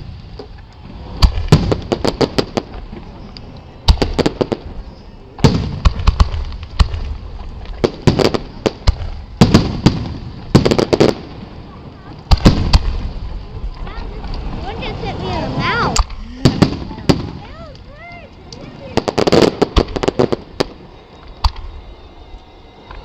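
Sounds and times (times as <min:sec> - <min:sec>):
firework shells bursting: 0:05.4 - 0:14.4, 0:15.9 - 0:21.9.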